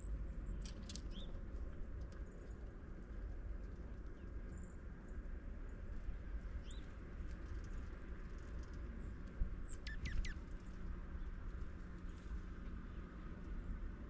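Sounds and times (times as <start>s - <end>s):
wind rumble on microphone: 0.0s - 14.0s
small birds chirping: 0.5s - 1.4s, 6.6s - 6.9s, 9.6s - 11.4s.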